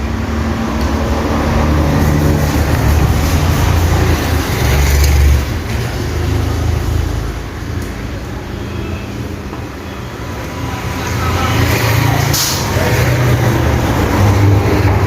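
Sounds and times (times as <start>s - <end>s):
road traffic noise: 0.0s - 15.0s
vehicle engine rumbling: 0.0s - 15.0s.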